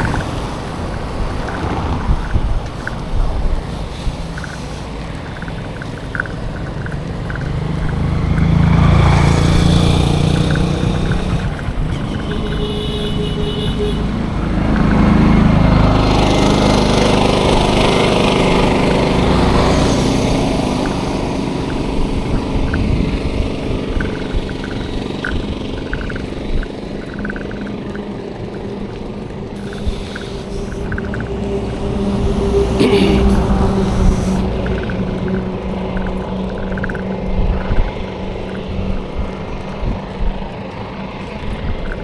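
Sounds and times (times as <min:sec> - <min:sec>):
road noise: 0:00.0 - 0:42.0
vehicles passing: 0:00.0 - 0:42.0
short pitched horn tone: 0:11.9 - 0:14.3.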